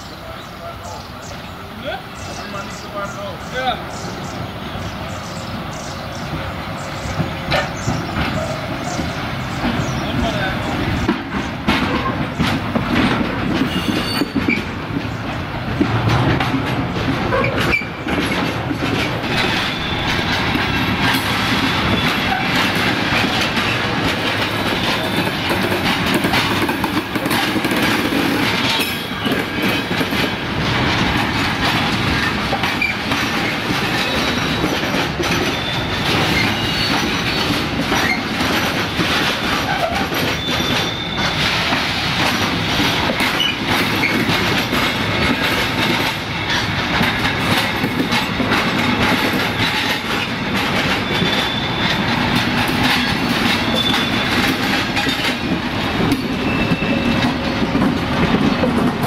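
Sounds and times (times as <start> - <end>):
train wheels clattering: 0.0 - 59.0
wheel squeals: 13.6 - 14.8, 19.2 - 23.9, 32.1 - 41.9, 49.2 - 57.8.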